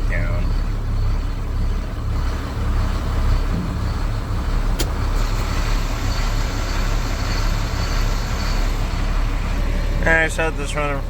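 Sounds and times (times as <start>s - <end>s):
truck engine idling: 0.0s - 11.0s
sharp click: 4.8s - 5.0s.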